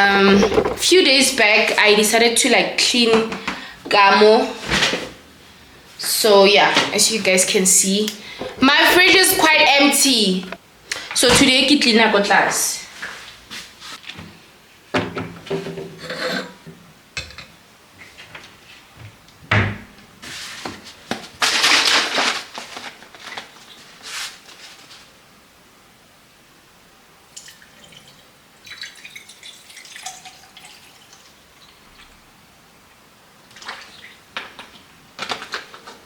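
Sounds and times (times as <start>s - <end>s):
heavy thump: 0.0s - 0.9s
items knocking and clattering: 0.0s - 1.2s, 8.3s - 9.8s
rustling: 20.2s - 25.2s.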